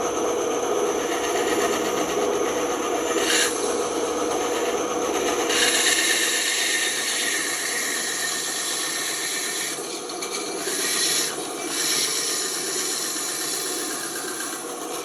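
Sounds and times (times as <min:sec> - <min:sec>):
band saw cutting wood: 0:00.0 - 0:15.0.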